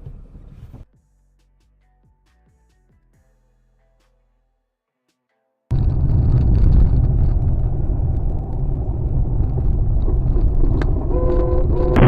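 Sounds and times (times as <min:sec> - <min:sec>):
car engine and road noise: 0:05.7 - 0:12.0.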